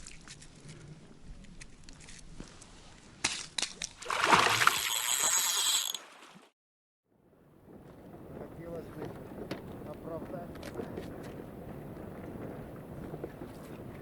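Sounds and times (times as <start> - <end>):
water splashing and sloshing: 3.8 - 6.6.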